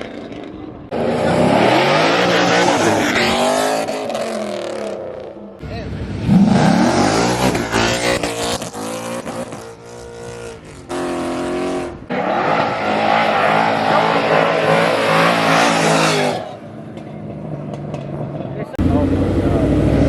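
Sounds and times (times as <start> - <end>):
car engine revving: 0.0 - 5.3, 5.9 - 20.0
tire squeal: 12.1 - 16.7.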